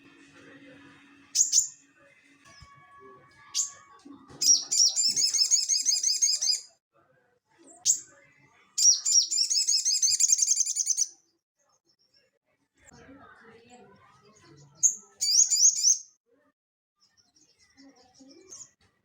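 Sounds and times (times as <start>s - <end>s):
songbird singing: 1.3s - 1.8s, 3.4s - 6.7s, 8.8s - 11.1s, 14.6s - 16.1s.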